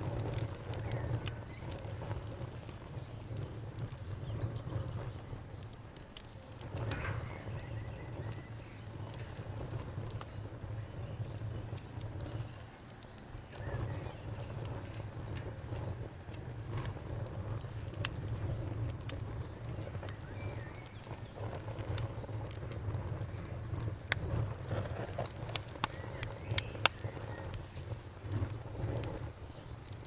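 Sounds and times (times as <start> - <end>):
campfire crackling and popping: 0.0 - 30.0.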